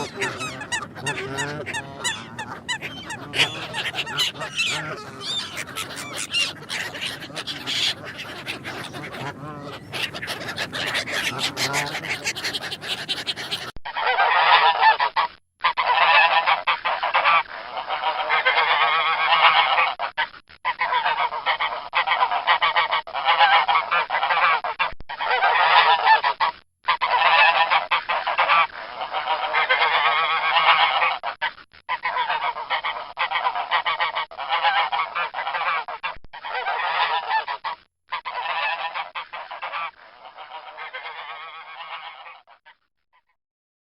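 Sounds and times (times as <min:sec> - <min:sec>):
geese honking: 0:00.0 - 0:13.7.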